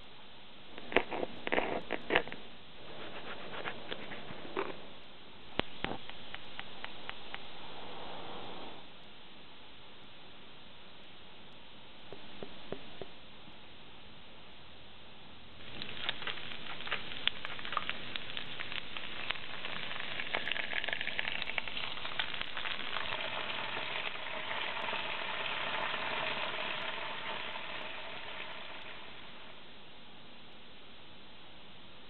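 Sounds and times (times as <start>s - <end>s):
oil popping: 15.6s - 29.5s
beans sizzling in hot oil: 15.6s - 29.7s.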